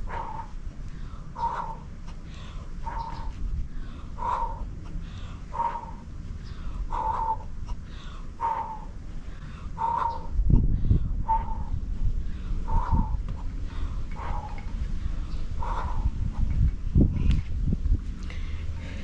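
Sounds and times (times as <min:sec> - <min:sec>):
low rumble: 0:00.0 - 0:19.0
bird calling: 0:01.4 - 0:03.4, 0:04.2 - 0:09.0, 0:09.8 - 0:10.4, 0:14.1 - 0:14.7.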